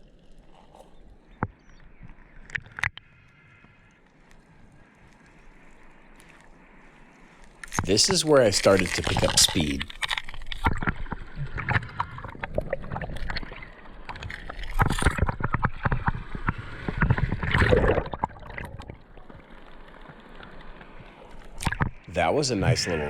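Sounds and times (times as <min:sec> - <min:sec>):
water rushing against kayak hull: 0:07.3 - 0:22.9.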